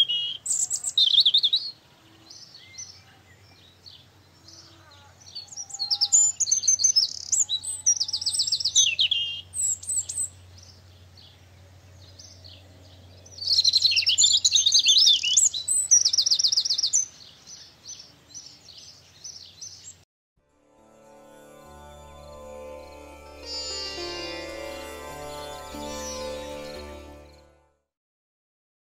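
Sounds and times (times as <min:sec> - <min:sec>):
soft bird chirps: 0:00.0 - 0:20.0
songbird singing with trills: 0:00.0 - 0:20.0.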